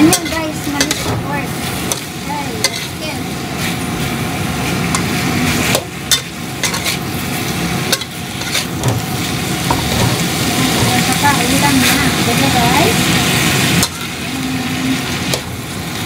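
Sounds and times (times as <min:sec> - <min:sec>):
meat sizzling in a wok: 0:00.0 - 0:16.0
spatula scraping a pan: 0:01.8 - 0:03.0, 0:04.8 - 0:07.1, 0:07.9 - 0:09.0.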